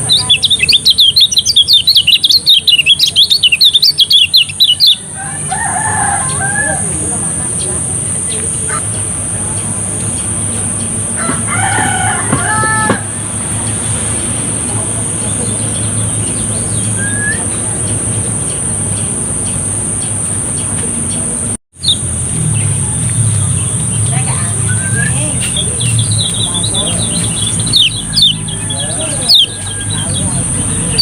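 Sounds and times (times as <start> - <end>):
rising bird chirp: 0.0 - 6.9, 7.5 - 31.0
rooster crowing: 5.0 - 7.3, 11.1 - 13.8, 26.8 - 31.0
low hum: 6.8 - 31.0.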